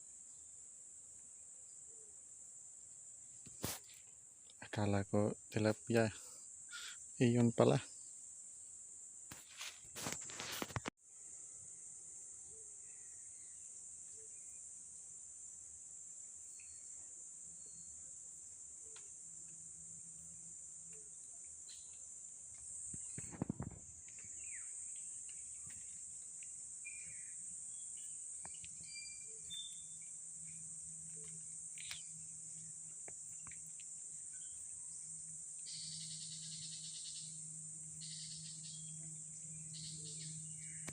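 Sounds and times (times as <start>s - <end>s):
insects shrilling: 3.3s - 8.1s, 8.7s - 10.9s, 17.6s - 40.9s
sharp clicks: 31.3s - 32.1s.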